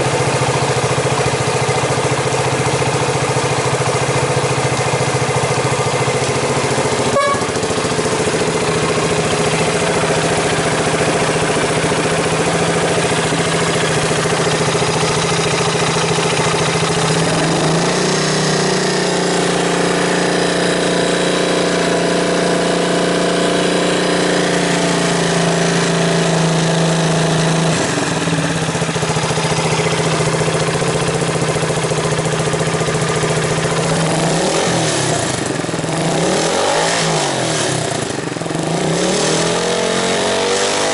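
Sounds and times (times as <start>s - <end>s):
motorcycle engine idling: 0.0s - 39.4s
engine rev blip: 7.1s - 7.6s.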